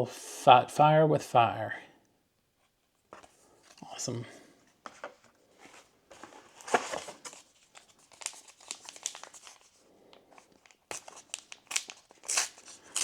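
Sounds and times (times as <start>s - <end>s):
foil wrapper crinkling and tearing: 6.7s - 9.8s, 10.4s - 13.0s.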